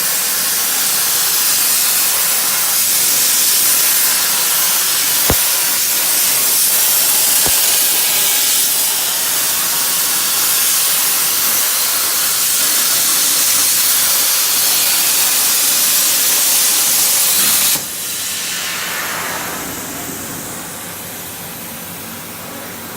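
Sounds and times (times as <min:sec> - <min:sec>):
plasma cutter torch hissing: 0:03.2 - 0:08.9.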